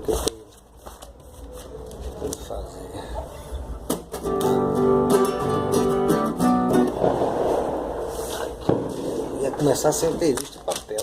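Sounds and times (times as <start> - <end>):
acoustic guitar strumming: 3.9 - 7.2.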